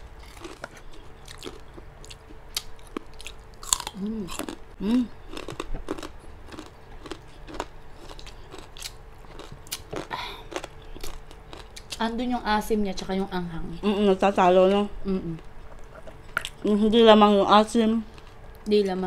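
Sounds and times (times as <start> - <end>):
crunching and chewing pork rind: 0.0 - 12.0, 15.4 - 16.6, 18.0 - 18.7.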